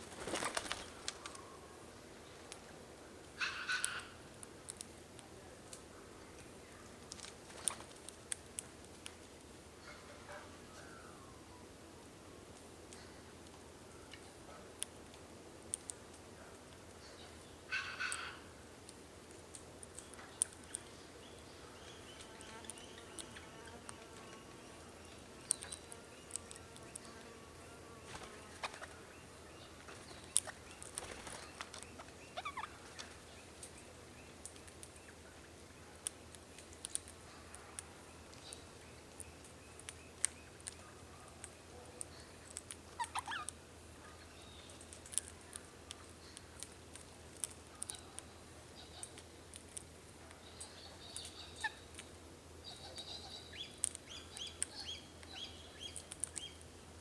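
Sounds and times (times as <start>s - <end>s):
low steady hiss: 0.0s - 57.0s
wild birds calling: 3.4s - 4.2s, 17.6s - 18.5s, 28.1s - 33.5s
high chirping: 28.6s - 32.9s.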